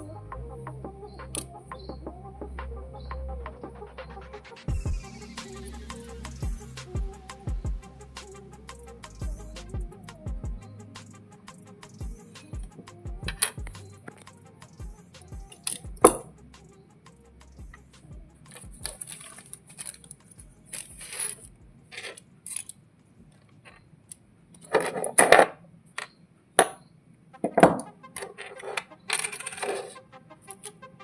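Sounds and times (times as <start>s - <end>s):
metal parts clicking and clinking: 18.5s - 22.8s.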